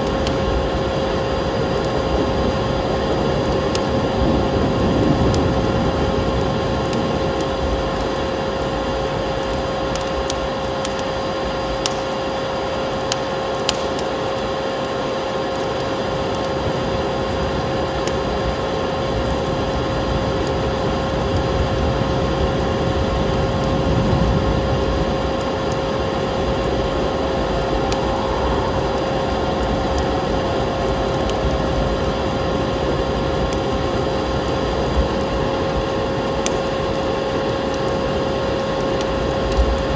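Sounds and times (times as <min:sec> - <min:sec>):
steady hum: 0:00.0 - 0:39.9
wood fire crackling and popping: 0:00.0 - 0:39.9
steady rushing noise: 0:21.2 - 0:39.9.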